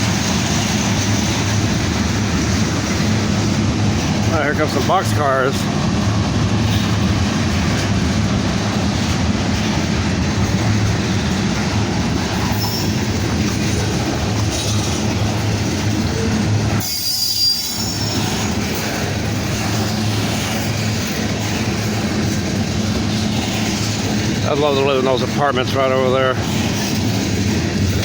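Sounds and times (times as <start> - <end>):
freight cars rumbling on rails: 0.0 - 28.0
high wheel squeal: 12.4 - 13.1, 16.8 - 18.8.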